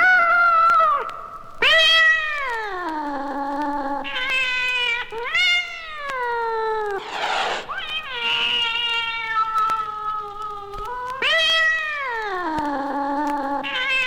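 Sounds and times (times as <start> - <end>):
cats yowling: 7.0 - 7.8.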